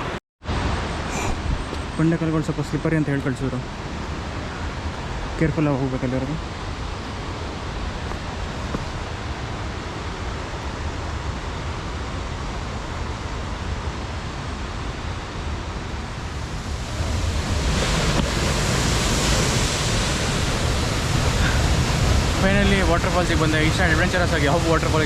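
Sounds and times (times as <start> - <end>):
wind rumbling on microphone: 0.0 - 2.1, 6.3 - 25.0
waterfall rushing: 15.8 - 25.0.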